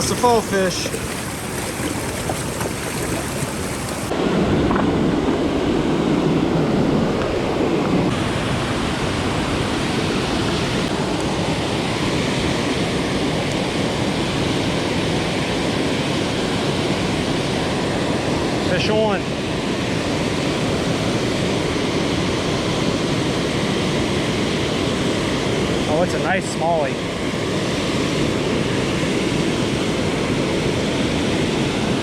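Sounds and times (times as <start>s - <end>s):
river water rushing: 0.0s - 4.1s
wind noise on microphone: 0.0s - 15.0s.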